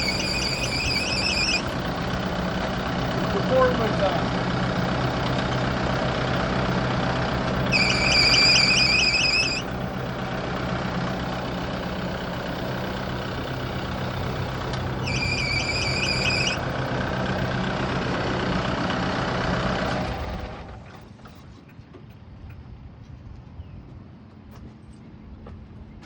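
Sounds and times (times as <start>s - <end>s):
belt squealing: 0.0s - 2.2s, 7.6s - 10.0s, 14.3s - 16.6s
tractor engine running: 0.0s - 22.9s.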